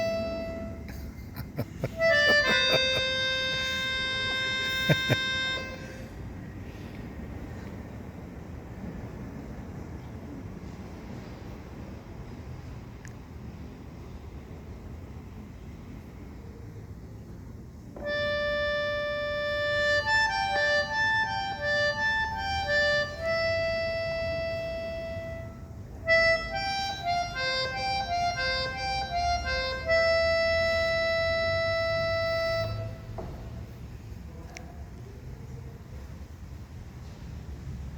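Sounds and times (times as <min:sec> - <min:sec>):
harmonica tune: 0:00.0 - 0:06.2, 0:18.0 - 0:33.2.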